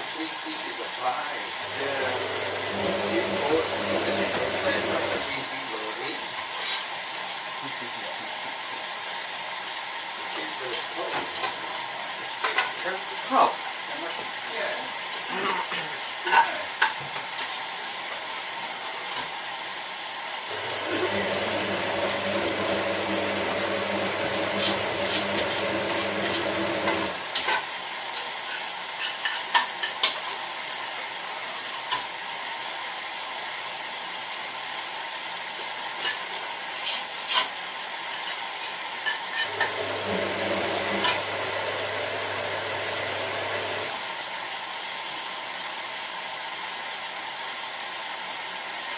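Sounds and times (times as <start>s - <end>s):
washing machine motor humming: 1.5s - 5.4s, 20.5s - 27.5s, 39.5s - 44.2s.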